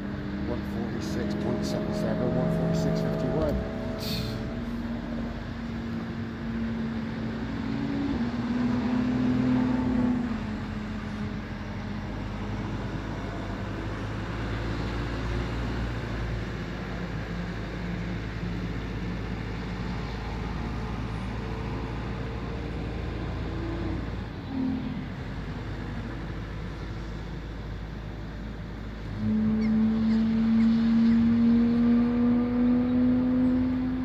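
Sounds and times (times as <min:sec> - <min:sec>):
low engine drone: 0:00.0 - 0:34.0
race car accelerating past: 0:00.4 - 0:05.8, 0:29.2 - 0:34.0.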